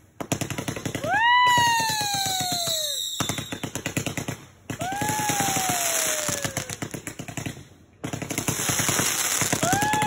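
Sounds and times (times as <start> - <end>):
fireworks crackling: 0.0 - 10.0
firework whistle: 1.0 - 3.8, 4.8 - 6.8.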